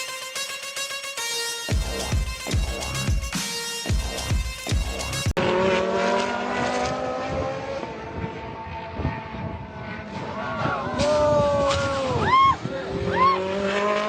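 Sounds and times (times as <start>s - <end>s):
electronic music with heavy beat: 0.0s - 5.3s
car engine at high revs: 5.0s - 14.0s.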